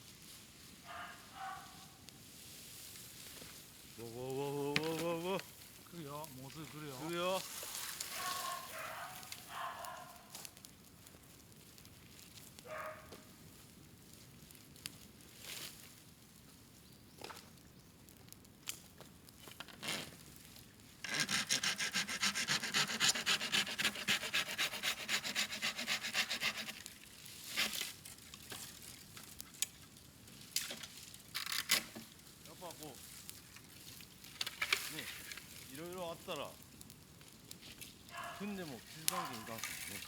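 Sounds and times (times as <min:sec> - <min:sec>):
bonfire popping: 0:02.0 - 0:40.0
fast rasping rub: 0:21.0 - 0:26.9.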